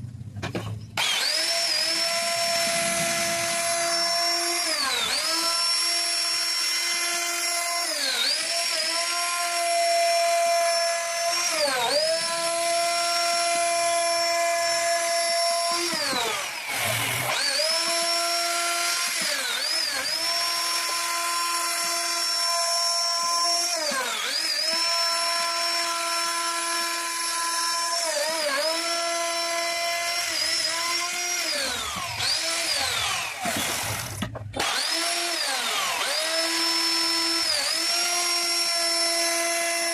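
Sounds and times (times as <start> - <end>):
router spindle cutting wood: 1.0 - 39.9.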